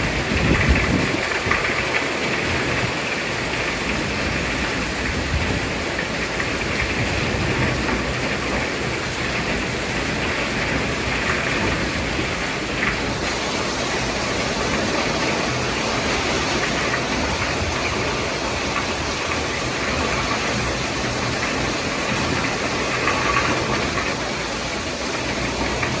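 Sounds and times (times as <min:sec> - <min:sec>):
heavy rain in strong wind: 0:00.0 - 0:26.0.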